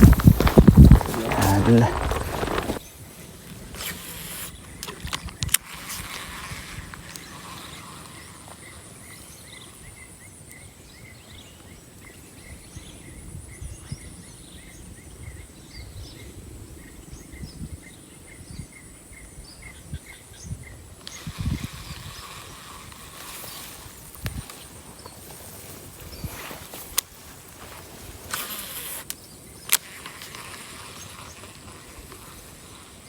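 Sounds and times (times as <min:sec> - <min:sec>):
insects buzzing: 0:00.0 - 0:11.1, 0:19.9 - 0:33.0.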